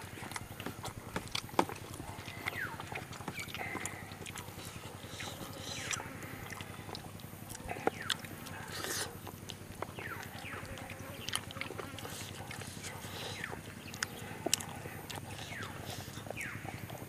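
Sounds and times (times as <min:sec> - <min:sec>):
sharp mouth clicks: 0:00.0 - 0:17.0
wet chewing and lip-smacking: 0:00.0 - 0:17.0.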